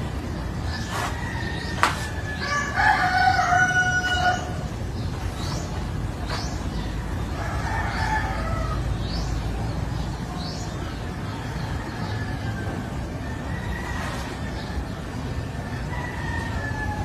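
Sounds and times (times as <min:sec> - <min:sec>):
steady low rumble: 0:00.0 - 0:17.0
small bird chirping: 0:00.4 - 0:08.0.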